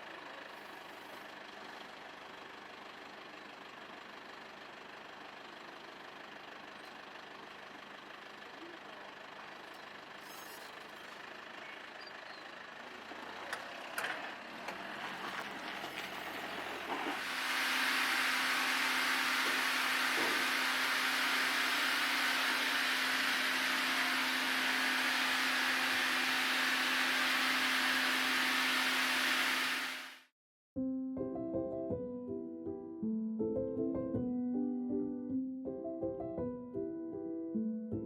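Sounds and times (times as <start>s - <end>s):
sawmill machinery running: 0.0s - 30.3s.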